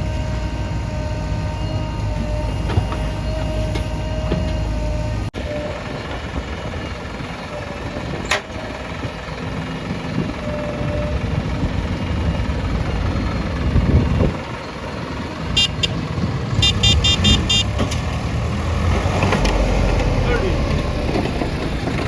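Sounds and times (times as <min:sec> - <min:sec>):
horn short beeps: 0:00.0 - 0:05.7, 0:15.6 - 0:16.0, 0:16.6 - 0:17.8
diesel engine running: 0:00.0 - 0:22.0.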